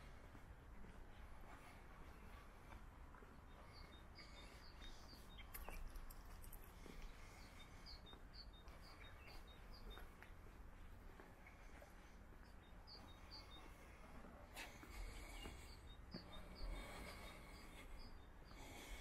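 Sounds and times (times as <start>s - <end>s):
faint high bird chirps: 7.4s - 10.2s.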